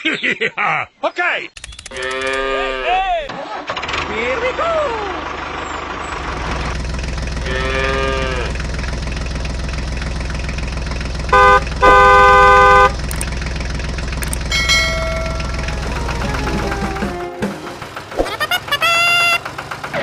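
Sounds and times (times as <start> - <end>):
tractor engine running: 3.5 - 20.0
cow mooing: 7.5 - 8.6
vehicle horn honking: 11.3 - 13.1.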